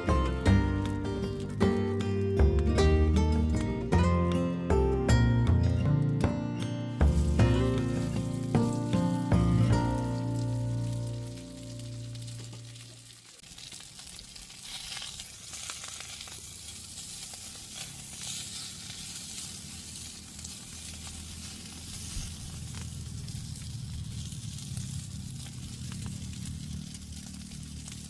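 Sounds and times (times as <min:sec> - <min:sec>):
food frying in hot oil: 0:07.0 - 0:28.0.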